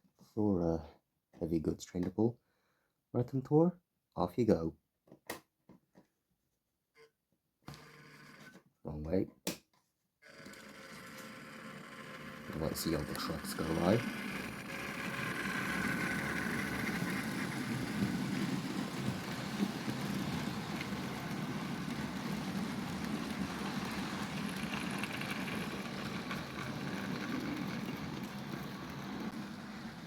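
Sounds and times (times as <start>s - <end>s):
small electric motor humming: 10.2s - 18.2s
model train wheels rumbling on track: 10.4s - 30.0s.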